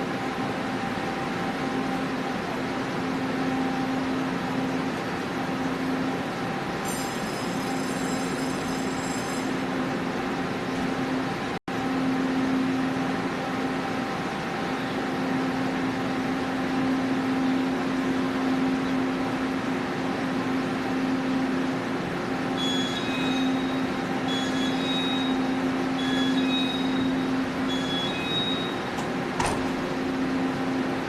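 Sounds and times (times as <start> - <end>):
train humming: 0.0 - 31.0
thin high whine: 6.8 - 9.7.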